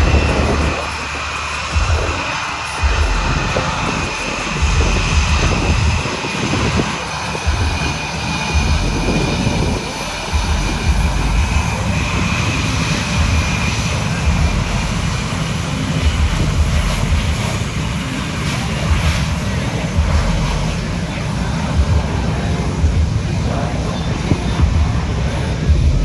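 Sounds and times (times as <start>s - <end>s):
jet engines high whine: 0.0s - 26.0s
jet engines low rumble: 0.0s - 26.0s.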